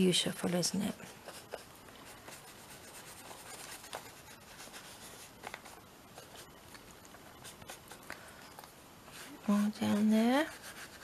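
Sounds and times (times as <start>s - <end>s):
ink rubbing on paper: 9.2s - 11.0s.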